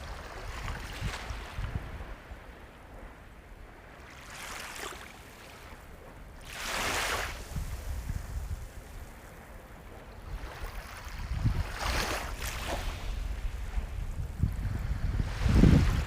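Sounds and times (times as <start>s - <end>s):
sea waves washing onto shore: 0.0s - 16.0s.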